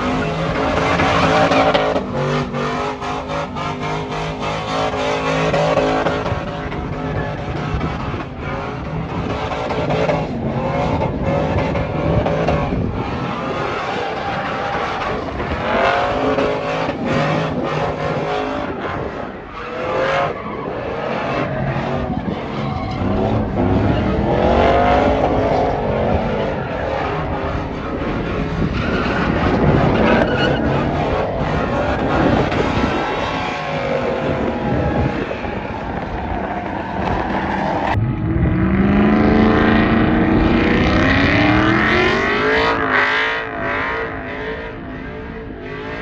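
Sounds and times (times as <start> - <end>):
truck engine revving: 0.0 - 46.0
tyres squealing: 28.7 - 34.5.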